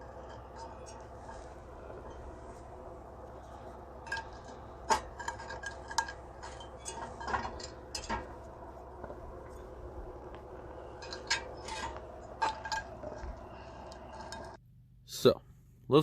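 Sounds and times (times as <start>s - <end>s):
metal cookware clinking: 3.5s - 8.4s.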